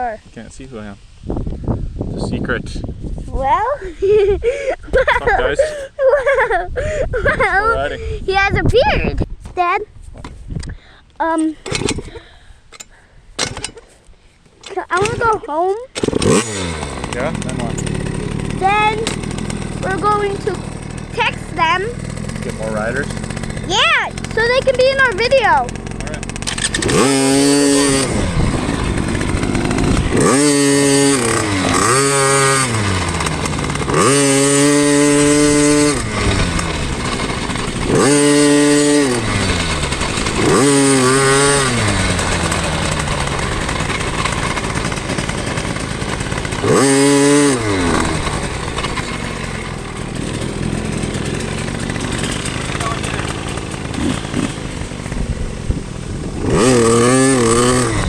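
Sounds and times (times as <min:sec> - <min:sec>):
dirt bike engine revving: 0:14.7 - 0:58.0.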